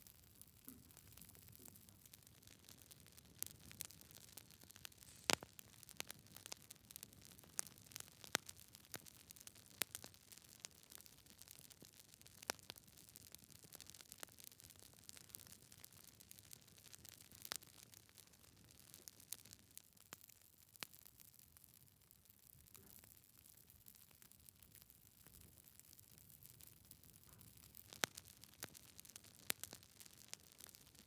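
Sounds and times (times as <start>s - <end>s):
low steady hiss: 0.0s - 12.4s
wood fire crackling: 0.0s - 21.4s, 23.4s - 31.0s.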